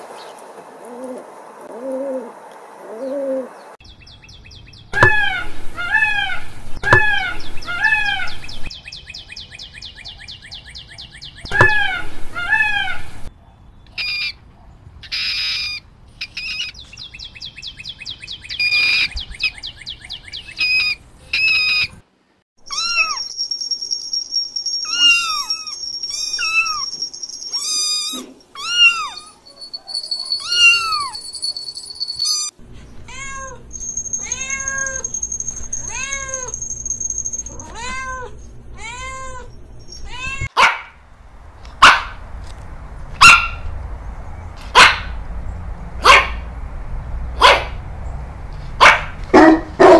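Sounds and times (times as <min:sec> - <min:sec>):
high chirps and squeaks: 0:05.0 - 0:08.7, 0:11.4 - 0:13.3, 0:15.0 - 0:16.8, 0:22.6 - 0:40.5
peacock calling: 0:05.0 - 0:08.7, 0:11.5 - 0:13.3, 0:24.8 - 0:32.6
cat meowing: 0:27.9 - 0:29.4
steady high tone: 0:33.6 - 0:38.1
fast high trill: 0:33.7 - 0:37.7.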